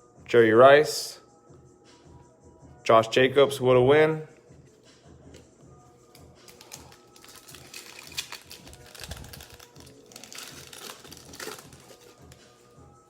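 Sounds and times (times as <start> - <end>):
faint music: 0.0 - 13.0
cards being handled: 5.3 - 12.7
foil wrapper tearing and crinkling: 6.4 - 12.5.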